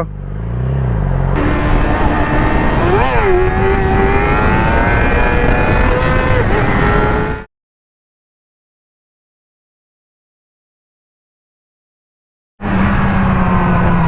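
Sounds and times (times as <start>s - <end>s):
vehicle engine accelerating hard: 0.0s - 7.5s, 12.6s - 14.0s
wind and road noise: 0.0s - 7.5s, 12.6s - 14.0s.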